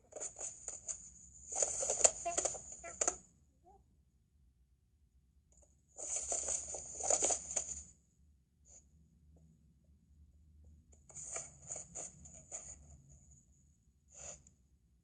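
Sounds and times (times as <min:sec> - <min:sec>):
scratchy rustling: 0:00.0 - 0:03.2, 0:06.0 - 0:07.9, 0:11.1 - 0:12.8.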